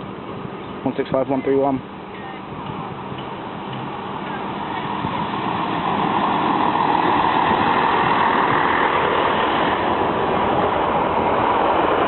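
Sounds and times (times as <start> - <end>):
diesel train engines: 0.0 - 12.0
train wheels on rails: 2.6 - 12.0.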